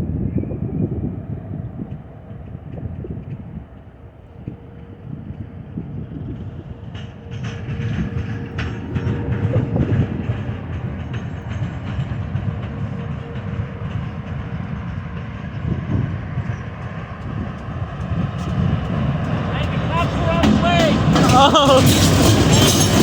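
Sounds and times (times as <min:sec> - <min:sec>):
train wheels rumbling on rails: 0:00.0 - 0:23.0
wheels clicking over rail joints: 0:06.0 - 0:23.0.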